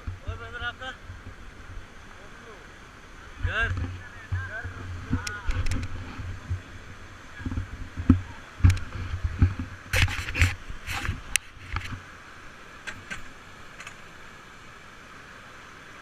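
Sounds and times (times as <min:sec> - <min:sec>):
river water rushing: 0:00.0 - 0:16.0
paddles knocking and splashing: 0:03.3 - 0:12.0.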